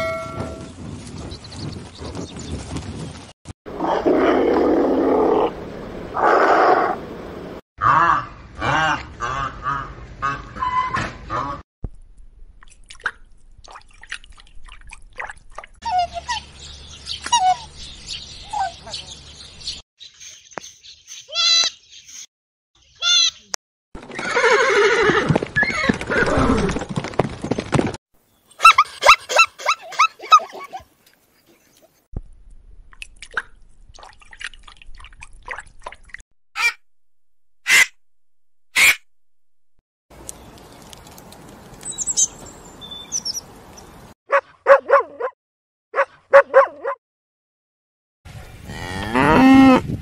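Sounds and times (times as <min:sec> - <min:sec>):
watery drips and clicks: 0:40.2 - 0:41.9.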